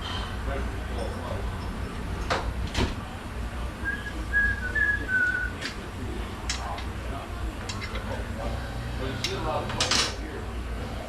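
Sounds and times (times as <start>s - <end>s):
steady low hum: 0.0s - 11.0s
person whistling: 3.9s - 5.5s.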